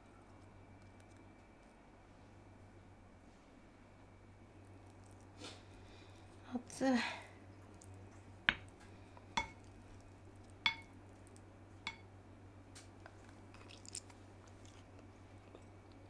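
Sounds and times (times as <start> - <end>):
cutlery clinking on ceramic dish: 9.4 - 9.6, 10.7 - 10.9.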